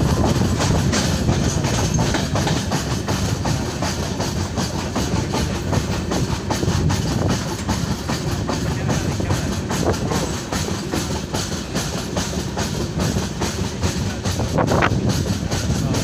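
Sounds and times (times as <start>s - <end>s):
train coaches rumbling: 0.0s - 16.0s
wheel clatter on rails: 0.0s - 16.0s.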